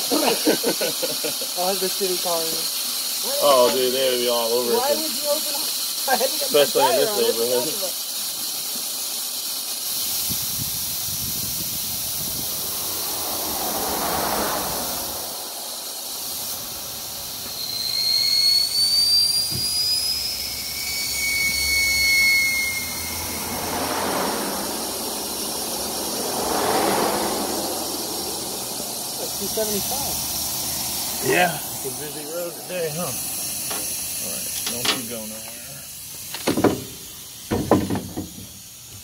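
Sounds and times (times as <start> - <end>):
road traffic passing: 1.6 - 7.8, 9.8 - 39.0
high rising vehicle whine: 10.8 - 37.4.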